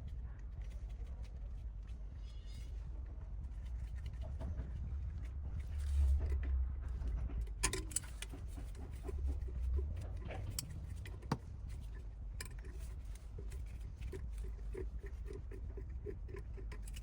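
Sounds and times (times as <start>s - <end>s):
steady low rumble: 0.0s - 17.0s
light clicks and metallic knocks: 3.4s - 17.0s.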